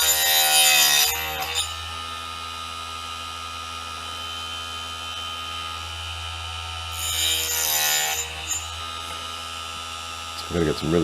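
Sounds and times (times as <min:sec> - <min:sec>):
saw blade cutting timber: 0:00.0 - 0:02.3, 0:06.8 - 0:09.5
saw motor humming: 0:00.0 - 0:11.0.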